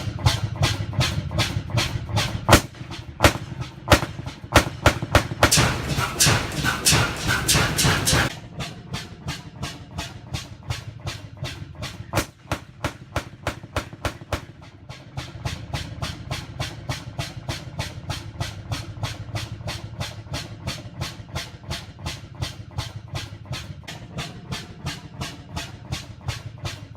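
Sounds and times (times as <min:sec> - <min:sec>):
noisy rush: 0:00.0 - 0:20.1
oil field engine running: 0:00.0 - 0:26.9.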